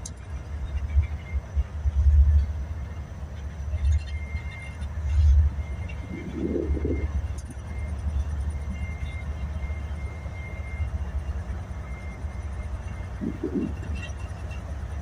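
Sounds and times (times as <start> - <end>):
freight train rumbling past: 5.0 - 7.3, 13.1 - 15.0.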